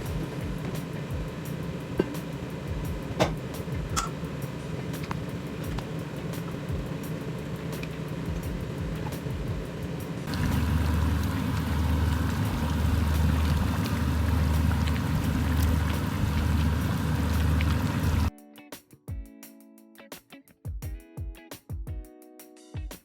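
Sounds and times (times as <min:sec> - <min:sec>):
food sizzling in a pan: 0:00.0 - 0:18.3
low hum: 0:00.0 - 0:18.3
guitar music: 0:18.3 - 0:22.6.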